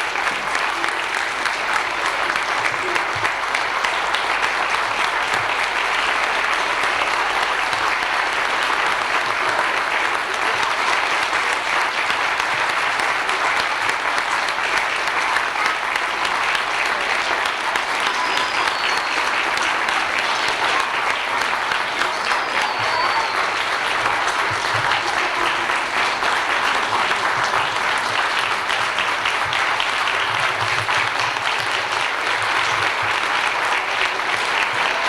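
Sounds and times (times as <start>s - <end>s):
audience applauding: 0.0s - 35.0s
whistles from audience: 16.9s - 25.7s.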